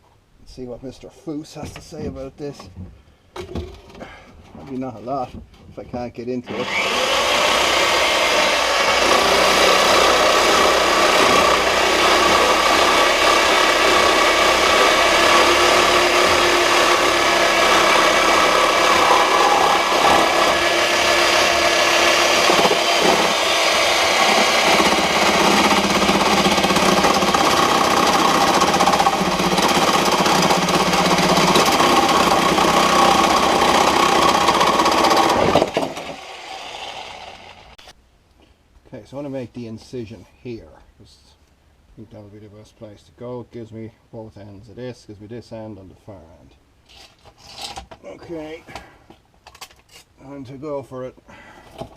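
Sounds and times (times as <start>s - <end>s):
power tool cutting metal: 6.5s - 37.8s.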